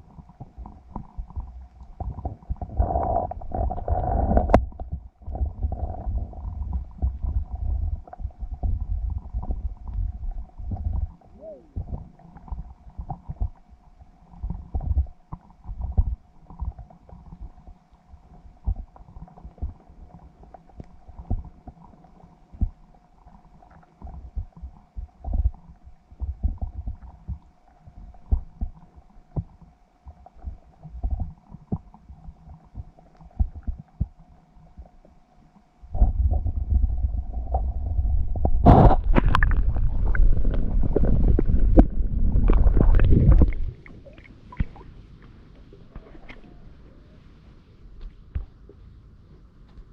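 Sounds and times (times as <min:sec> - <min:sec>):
underwater thumps and rumbles: 0:00.0 - 0:22.9, 0:23.7 - 0:35.0, 0:35.9 - 0:46.5
faint steady hum: 0:00.0 - 0:49.9.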